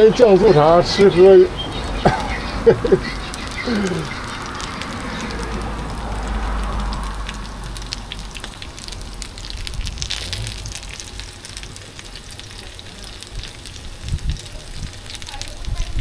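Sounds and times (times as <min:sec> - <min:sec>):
food sizzling on a griddle: 0:00.0 - 0:16.0
low rumble: 0:04.3 - 0:15.2.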